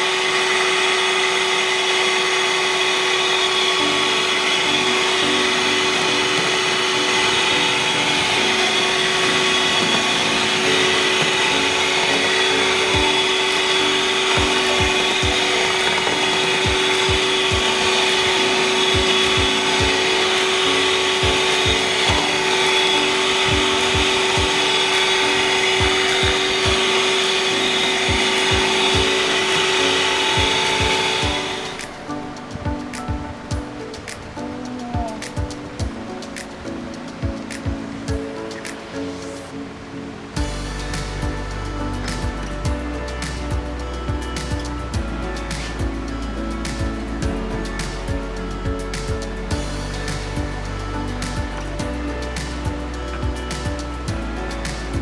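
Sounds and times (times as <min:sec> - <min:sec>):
kitchen appliance motor running: 0:00.0 - 0:31.8.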